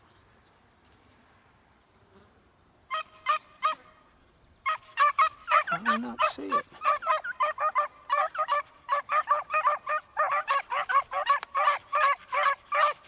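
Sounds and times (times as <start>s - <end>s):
hounds baying and yelping: 4.7s - 13.0s.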